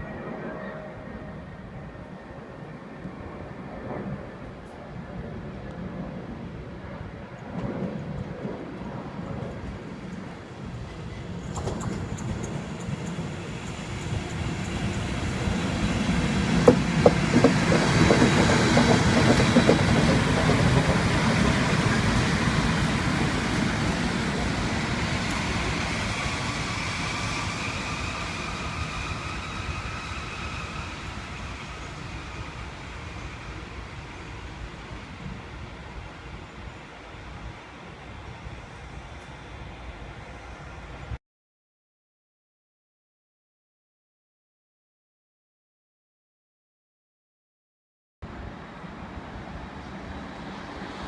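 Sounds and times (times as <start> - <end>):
train rumbling past: 7.4 - 41.2, 48.3 - 51.0
train wheel clicks: 16.6 - 21.0.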